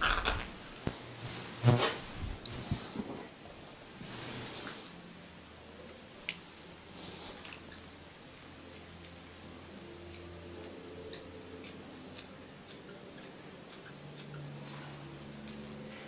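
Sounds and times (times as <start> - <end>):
faint low hum: 0.0 - 16.0
sharp ticks: 10.0 - 14.8.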